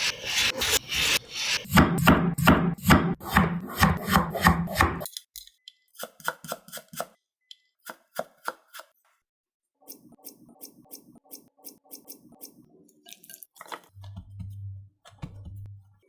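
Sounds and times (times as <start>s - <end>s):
knife chopping on cutting board: 1.7s - 5.0s.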